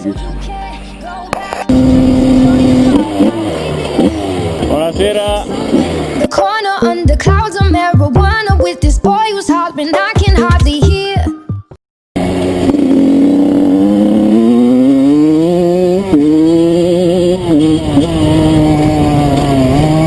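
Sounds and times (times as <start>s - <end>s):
dirt bike engine accelerating: 1.6s - 6.4s, 12.2s - 20.0s.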